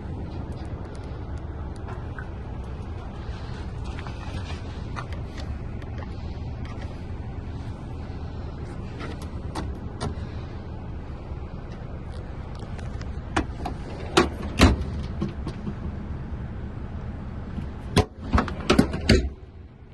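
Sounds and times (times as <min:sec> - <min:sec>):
truck low rumble: 0:00.0 - 0:19.9
sharp knocks and clunks: 0:13.3 - 0:16.1, 0:17.6 - 0:19.4.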